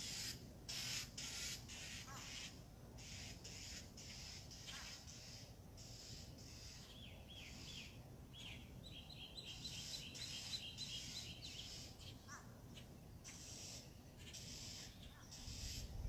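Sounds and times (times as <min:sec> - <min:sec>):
high hiss: 0:00.0 - 0:06.8
songbirds chirping: 0:00.0 - 0:16.0.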